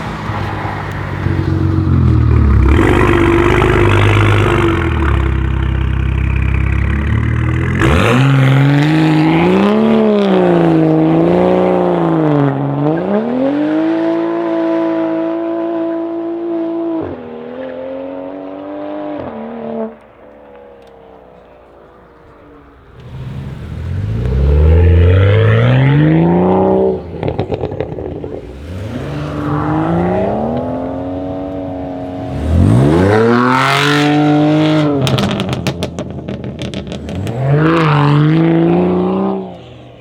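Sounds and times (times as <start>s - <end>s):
car engine revving at high revs: 0.0s - 17.4s, 21.6s - 39.6s.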